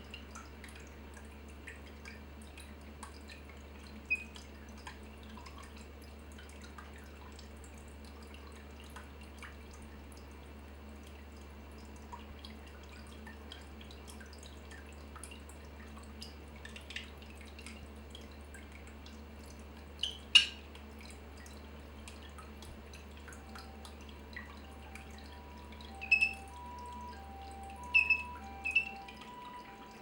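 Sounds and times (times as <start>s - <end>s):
water dripping: 0.0s - 30.0s
parakeet chirping: 20.0s - 20.6s, 25.4s - 26.8s, 27.8s - 29.2s.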